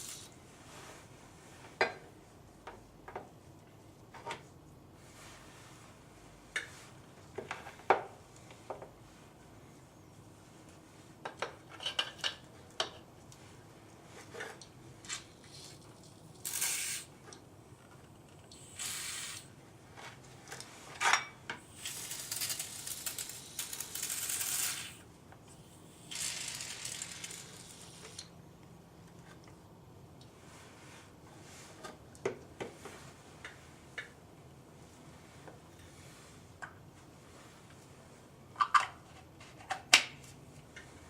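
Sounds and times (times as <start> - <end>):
aerosol spray hissing: 0.0 - 0.3, 16.5 - 17.1, 18.6 - 19.5
can and parts clicking: 16.4 - 17.1, 21.7 - 25.0.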